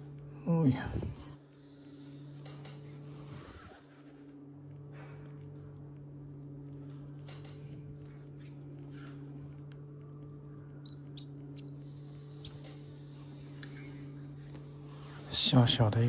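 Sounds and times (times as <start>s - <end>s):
steady low hum: 0.0s - 16.0s
baby bird peeping: 10.5s - 14.0s.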